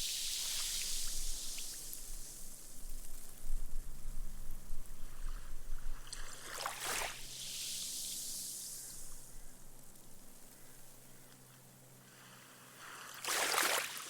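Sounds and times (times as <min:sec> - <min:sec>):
small wave washing on sand: 0:00.0 - 0:02.6, 0:06.0 - 0:09.2, 0:12.7 - 0:14.0.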